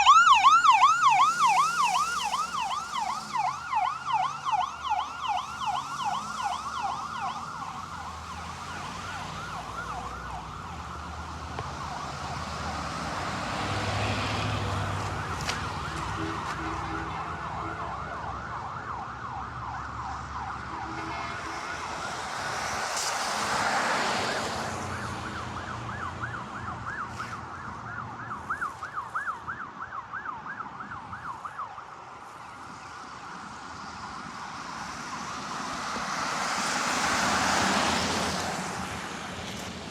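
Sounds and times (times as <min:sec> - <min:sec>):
electronic siren yelping: 0:00.0 - 0:11.2
engine and road noise: 0:00.0 - 0:39.9.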